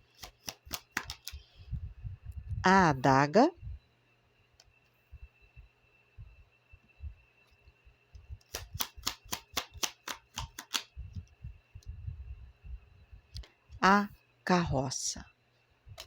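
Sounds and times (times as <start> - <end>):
crisp clicks of cards: 0.1 - 1.5, 8.4 - 11.0.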